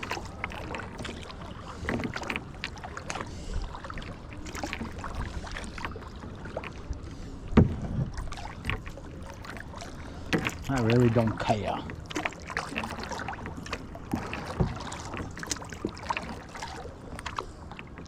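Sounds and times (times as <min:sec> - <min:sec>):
paddle splashing in water: 0:00.0 - 0:18.0
knocks against kayak: 0:07.5 - 0:08.2.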